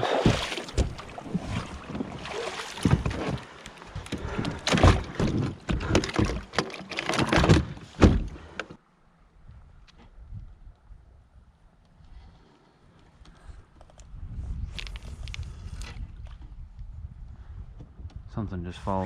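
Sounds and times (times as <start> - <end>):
water splashing: 0.0 - 5.1
kayak hull and gear bumping: 0.0 - 8.7.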